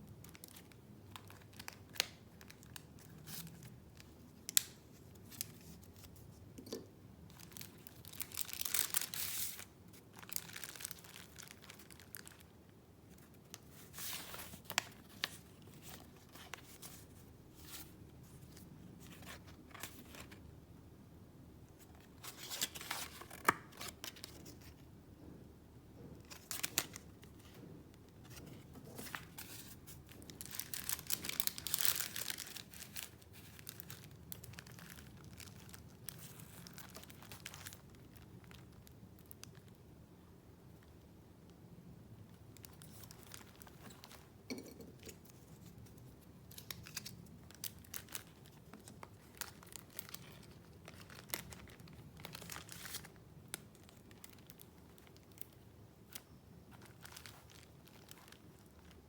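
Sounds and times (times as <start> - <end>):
paper rustling and crinkling: 7.3 - 12.5, 13.1 - 20.4, 26.0 - 38.7, 42.6 - 59.0.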